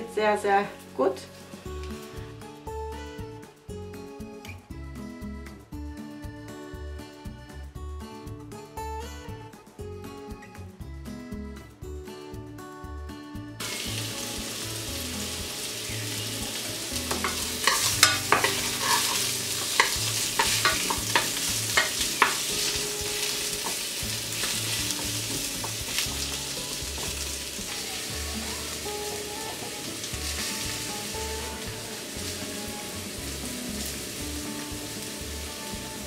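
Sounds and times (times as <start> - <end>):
asparagus sizzling in butter: 13.6 - 36.0
wooden spatula scraping pan: 17.0 - 26.0.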